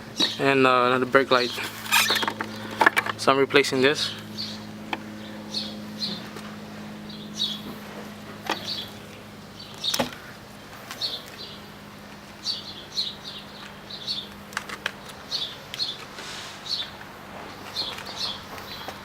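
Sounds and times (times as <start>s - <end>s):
small bird chirping: 4.0s - 7.8s, 8.4s - 19.0s.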